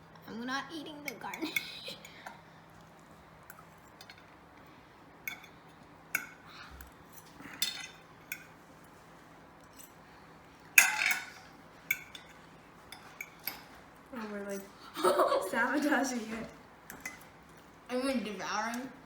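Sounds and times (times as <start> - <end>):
cutlery clinking on plates: 5.3 - 9.0, 9.6 - 13.8, 16.8 - 17.3.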